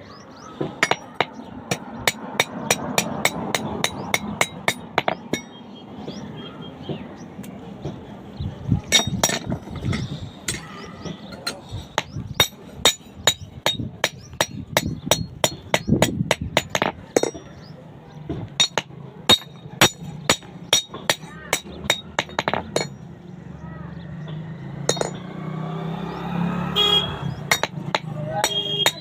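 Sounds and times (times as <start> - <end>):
hammer striking iron on anvil: 0.8 - 5.6, 12.0 - 17.5, 18.6 - 23.0, 24.9 - 25.3, 27.5 - 29.0.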